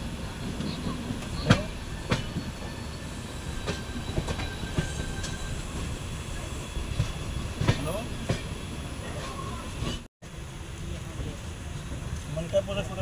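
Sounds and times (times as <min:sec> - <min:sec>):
train running rumble: 0:00.0 - 0:13.0
faint high wheel squeal: 0:00.6 - 0:10.0.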